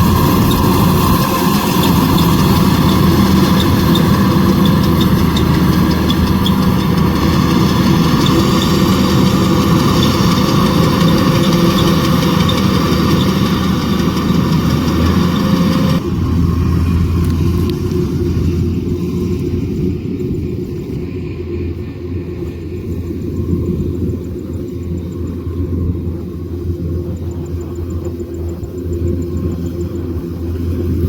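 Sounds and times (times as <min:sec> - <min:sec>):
harvesting machinery clatter and hiss: 0:00.0 - 0:16.0
diesel engine running: 0:00.0 - 0:21.8.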